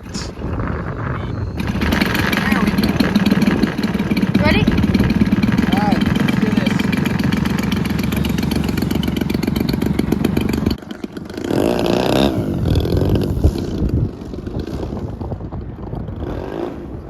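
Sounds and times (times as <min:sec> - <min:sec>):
faint engine sound: 0:00.0 - 0:17.0
model airplane engine running: 0:01.6 - 0:15.0.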